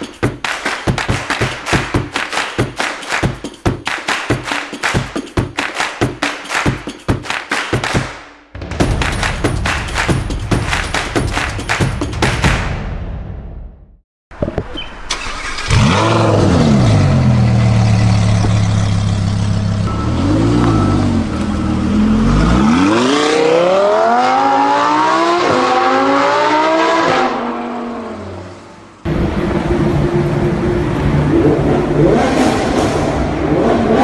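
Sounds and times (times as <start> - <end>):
car engine revving: 15.4 - 28.5, 29.1 - 34.0.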